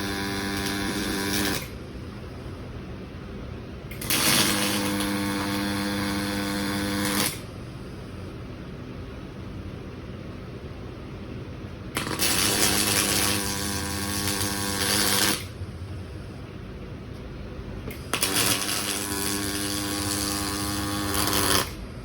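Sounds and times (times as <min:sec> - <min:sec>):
welding arc hiss and buzz: 0:00.0 - 0:02.5, 0:03.9 - 0:08.2, 0:11.9 - 0:22.0
low steady hum: 0:00.0 - 0:22.0.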